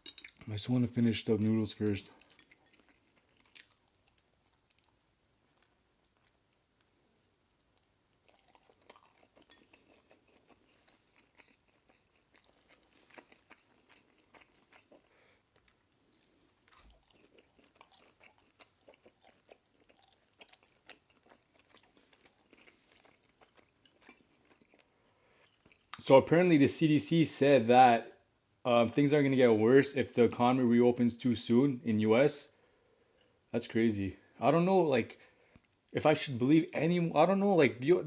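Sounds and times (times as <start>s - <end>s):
faint close-up chewing: 1.4s - 26.0s.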